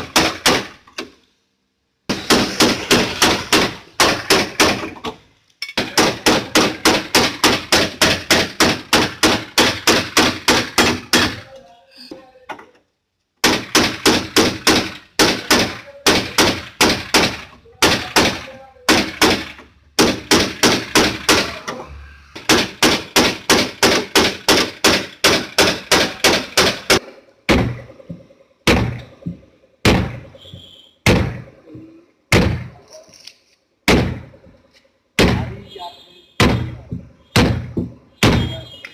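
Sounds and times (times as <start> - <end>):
hammer striking sheet metal: 2.1 - 4.9, 22.4 - 27.8.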